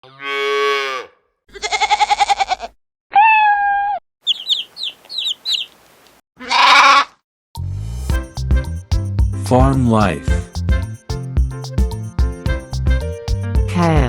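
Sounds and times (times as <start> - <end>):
sheep bleating: 0.0 - 3.6, 6.4 - 7.2
held steady animal call: 0.0 - 7.2
high chick peeps: 1.6 - 7.1.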